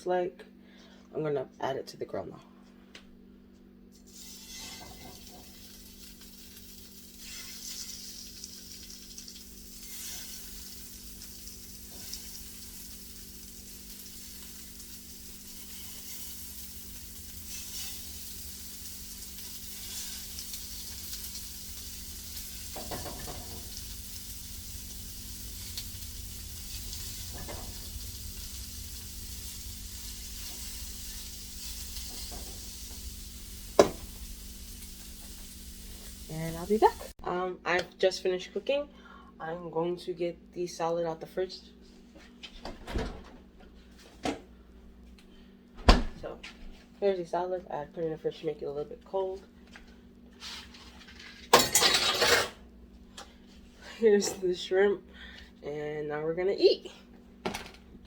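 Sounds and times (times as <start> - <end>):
shrimp sizzling on a grill: 4.1 - 37.2.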